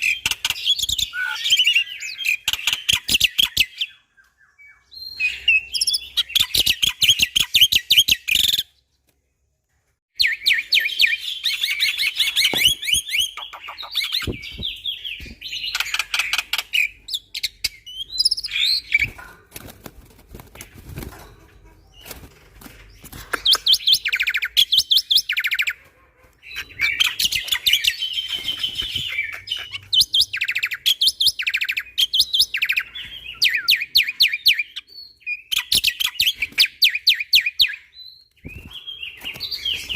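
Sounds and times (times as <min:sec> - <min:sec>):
myna bird chattering and whistling: 0:00.0 - 0:04.0, 0:10.2 - 0:19.2, 0:23.0 - 0:25.8, 0:26.4 - 0:39.9.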